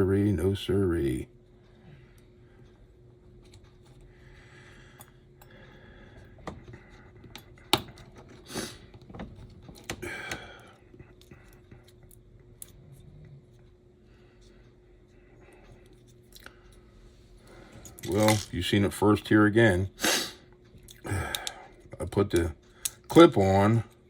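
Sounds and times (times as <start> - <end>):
small parts clicking: 17.8 - 18.6, 21.2 - 21.6.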